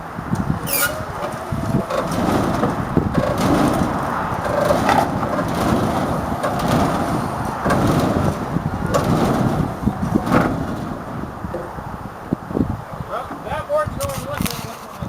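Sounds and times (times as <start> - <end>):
truck body scraping and creaking: 0.2 - 15.0
short squeak: 0.6 - 7.6.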